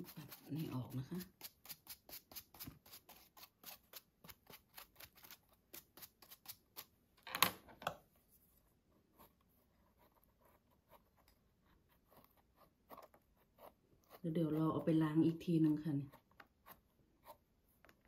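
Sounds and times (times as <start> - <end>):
brush scrape: 0.0 - 6.9.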